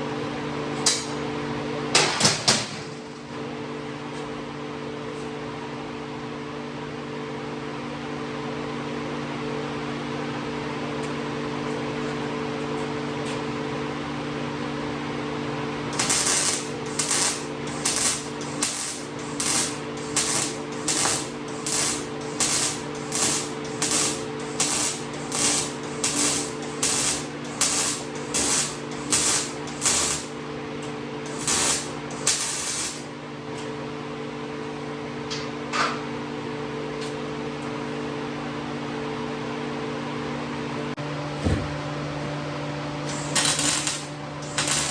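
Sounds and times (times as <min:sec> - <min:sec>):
welder machine hum: 0:10.4 - 0:34.8, 0:42.7 - 0:44.9
welding arc crackle: 0:15.9 - 0:30.4, 0:31.2 - 0:33.1, 0:43.1 - 0:44.9.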